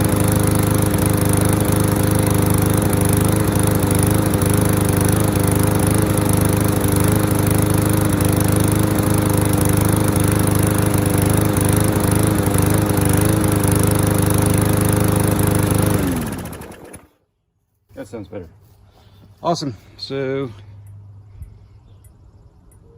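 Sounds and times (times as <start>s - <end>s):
engine winding down: 0.0s - 17.1s
lawnmower engine running: 0.0s - 17.2s.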